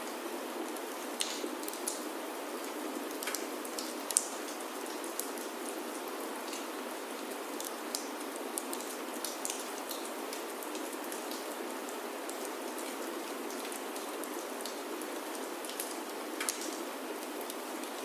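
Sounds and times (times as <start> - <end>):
rain on a wooden roof: 0.0 - 18.0.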